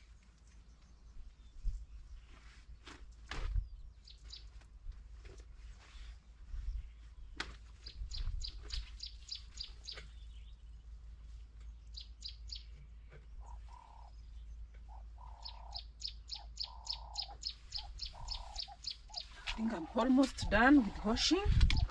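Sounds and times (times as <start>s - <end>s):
bird chirping rapidly: 7.8s - 10.6s, 11.9s - 21.9s
lower bird call: 11.9s - 20.1s.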